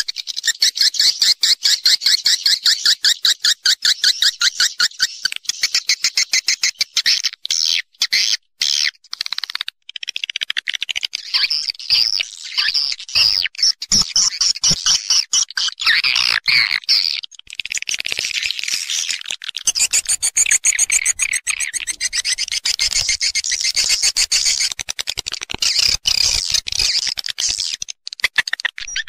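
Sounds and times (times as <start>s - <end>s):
swiftlets twittering: 19.7s - 24.7s.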